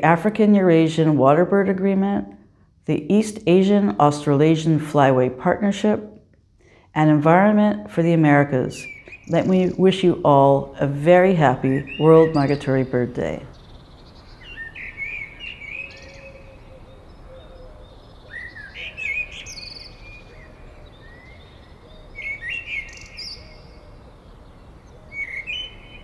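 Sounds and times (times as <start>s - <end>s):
bird singing chirping phrases: 7.0s - 26.0s.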